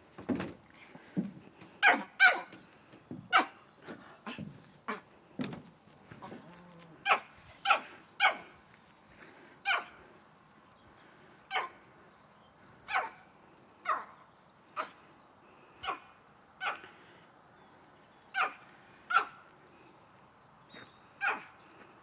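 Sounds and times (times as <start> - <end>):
dogs barking: 1.8 - 2.5, 7.0 - 8.6, 9.6 - 10.0, 11.5 - 11.8, 12.8 - 13.2, 15.8 - 17.0, 18.3 - 19.5, 21.2 - 21.6.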